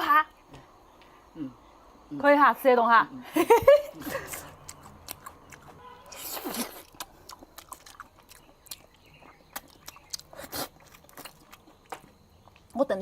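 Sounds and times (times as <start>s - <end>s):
close chewing and biting: 4.0s - 12.8s.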